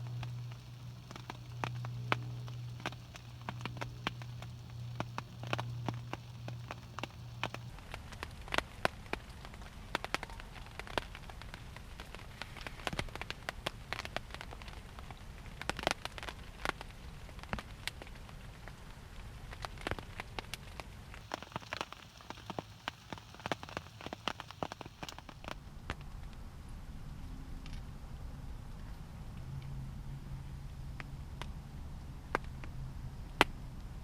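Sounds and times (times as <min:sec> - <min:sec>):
low hum: 0:00.0 - 0:07.8
rain drops tapping hard surface: 0:00.0 - 0:18.4, 0:19.6 - 0:25.6.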